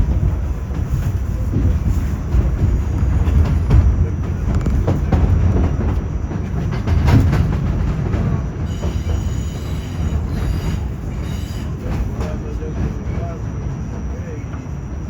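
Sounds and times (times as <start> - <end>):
wheels clicking over rail joints: 0.0 - 13.4
subway train rumbling: 0.0 - 15.0
faint high wheel squeal: 8.6 - 12.1.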